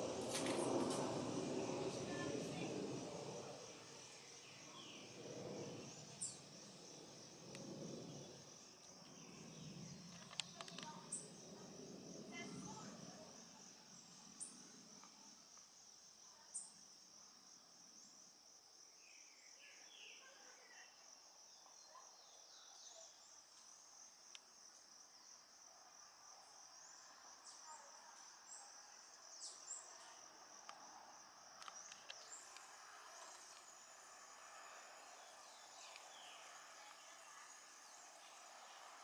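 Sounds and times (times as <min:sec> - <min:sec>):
high-pitched insect trill: 0:00.0 - 0:39.0.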